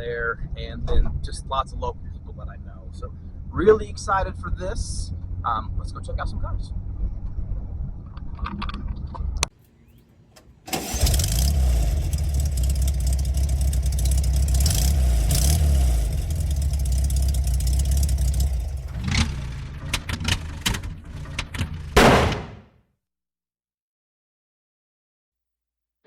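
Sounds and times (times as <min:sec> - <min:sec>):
car engine starting and running: 0:00.4 - 0:22.6
loud bang: 0:22.0 - 0:22.7.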